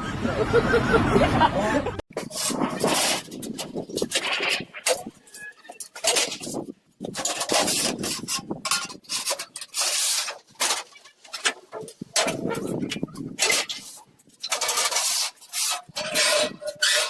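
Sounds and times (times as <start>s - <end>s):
rough scraping strokes: 2.1s - 17.0s.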